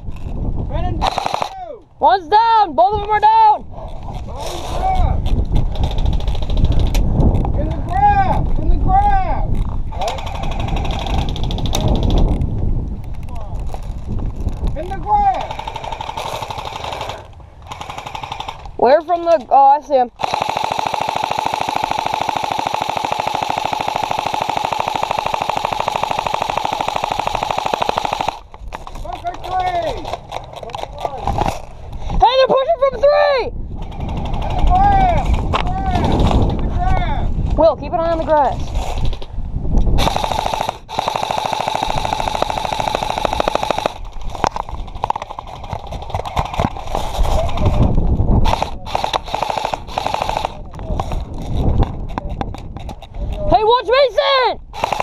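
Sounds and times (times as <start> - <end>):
airsoft gun full-auto firing: 1.0 - 1.5, 15.5 - 18.6, 20.2 - 28.5, 40.0 - 44.1, 48.4 - 50.6, 54.7 - 55.0.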